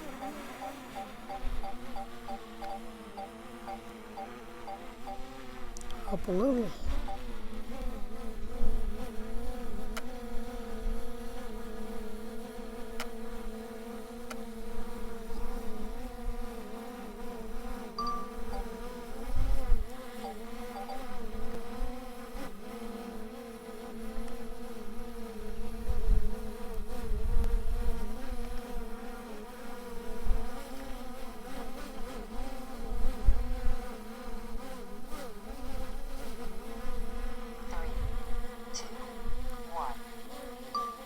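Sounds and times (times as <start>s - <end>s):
drone propellers buzzing: 0.0s - 7.4s
wind rumbling on microphone: 37.7s - 38.4s.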